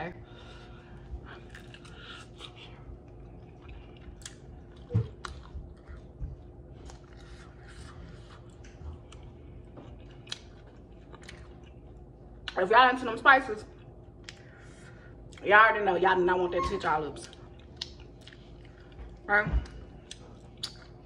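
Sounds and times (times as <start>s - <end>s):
chewing chicken wing: 1.2s - 12.6s, 17.2s - 21.0s.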